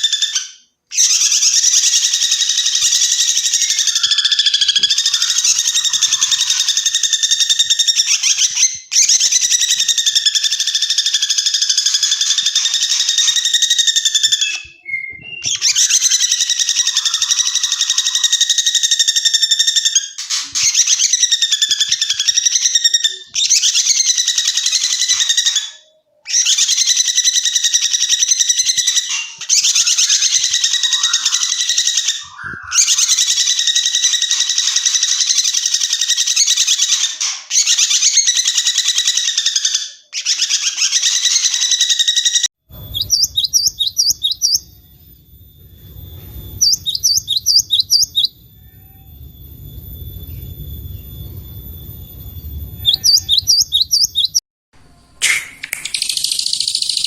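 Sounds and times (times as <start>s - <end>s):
bird high chipping notes: 0.0s - 26.2s, 28.2s - 36.0s, 41.2s - 57.0s
songbird trilling: 28.8s - 35.6s, 42.8s - 44.9s, 45.6s - 54.4s
low rumbling background: 42.7s - 54.3s.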